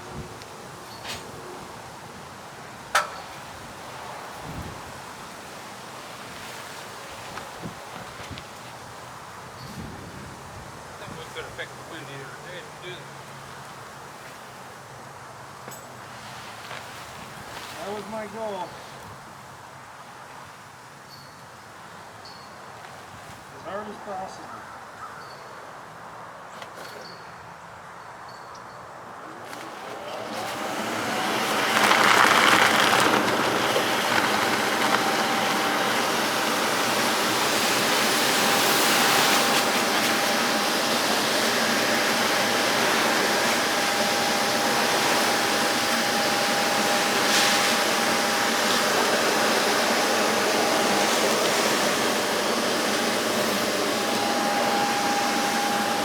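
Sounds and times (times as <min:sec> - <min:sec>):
electric fan motor whining: 0:29.2 - 0:56.0.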